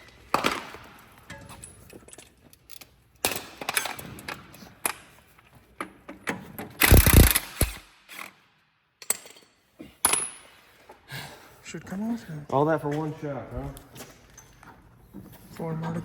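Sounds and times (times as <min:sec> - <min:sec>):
hand tools clicking and clanking: 0:00.3 - 0:08.3, 0:09.0 - 0:10.6
metal tools clattering: 0:01.2 - 0:04.7, 0:09.0 - 0:10.5.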